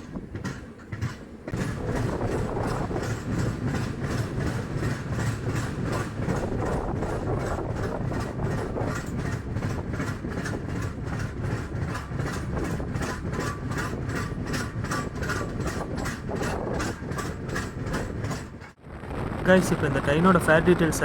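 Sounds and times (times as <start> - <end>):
wheel clicks over rails: 0.0 - 18.8
train coach rumbling: 0.0 - 21.0.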